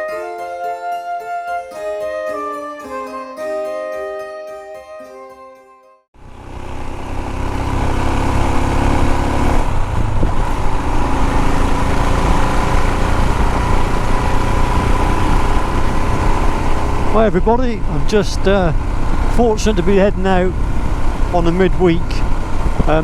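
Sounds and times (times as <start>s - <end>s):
low road noise rush: 6.2s - 23.0s
motorcycle engine running: 6.2s - 23.0s.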